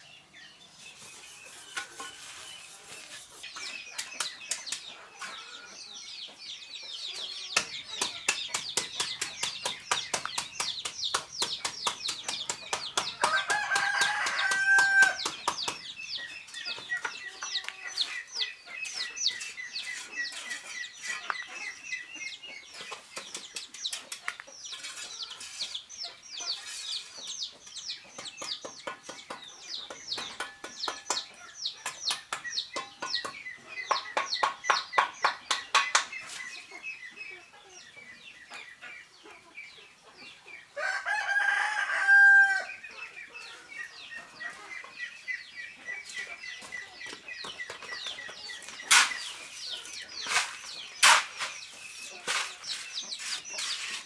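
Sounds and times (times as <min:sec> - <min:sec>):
chickens clucking: 0:00.8 - 0:54.0
rooster crowing: 0:13.2 - 0:15.2, 0:40.8 - 0:42.7.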